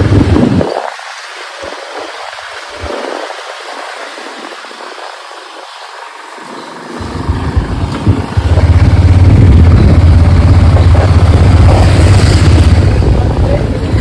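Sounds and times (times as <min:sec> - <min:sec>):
motorcycle pulling away: 0:06.0 - 0:14.0.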